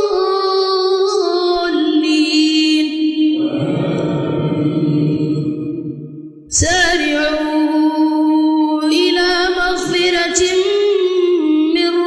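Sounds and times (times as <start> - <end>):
person reciting melodically: 0.0 - 5.9.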